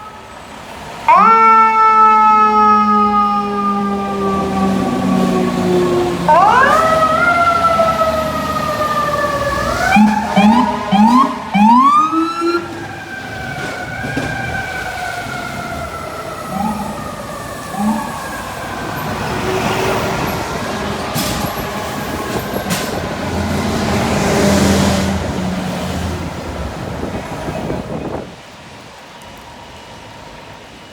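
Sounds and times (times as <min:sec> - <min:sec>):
truck engine rumble: 0:00.0 - 0:30.8
mechanical siren wailing: 0:01.0 - 0:22.7.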